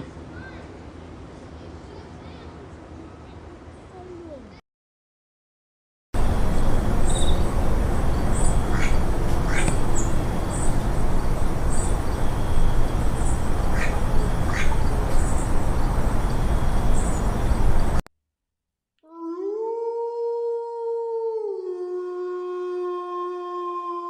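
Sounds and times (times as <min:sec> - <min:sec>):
birds chirping: 0:06.2 - 0:18.0
noisy background: 0:06.2 - 0:18.0
brief bird calls: 0:07.0 - 0:07.5, 0:08.1 - 0:11.1, 0:11.7 - 0:18.0.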